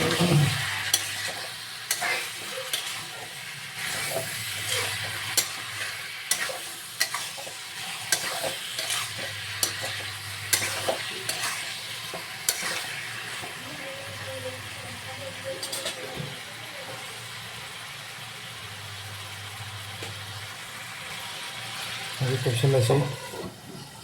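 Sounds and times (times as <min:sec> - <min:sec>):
spatula scraping a pan: 0:00.0 - 0:13.6
curry sizzling in a pan: 0:00.0 - 0:24.0.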